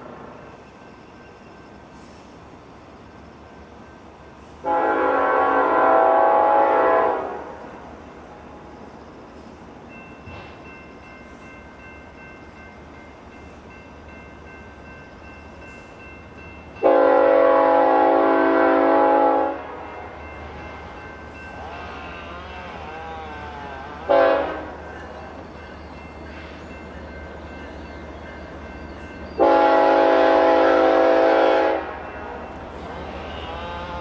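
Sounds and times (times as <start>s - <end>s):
train rumble: 0.0s - 34.0s
locomotive air horn blasts: 4.6s - 7.6s, 16.8s - 20.2s, 21.6s - 24.8s, 29.4s - 32.0s, 32.9s - 34.0s.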